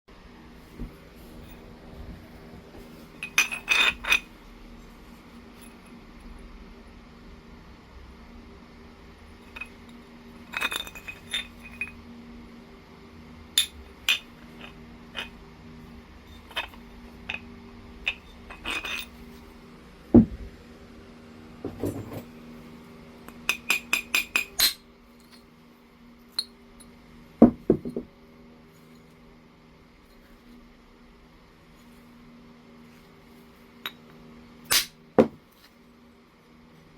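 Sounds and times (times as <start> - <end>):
stone pieces clinking and tapping: 3.2 - 4.3, 10.5 - 12.0, 18.0 - 19.2, 23.3 - 25.4, 34.7 - 35.4.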